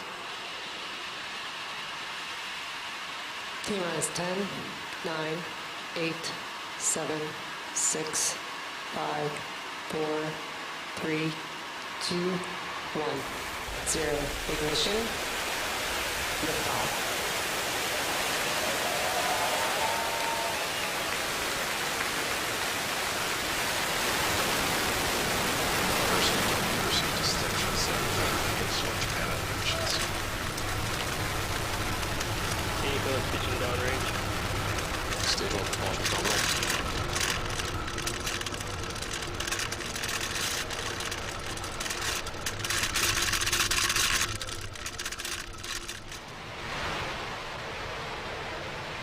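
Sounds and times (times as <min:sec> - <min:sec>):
rocket exhaust roar: 0:11.7 - 0:49.0.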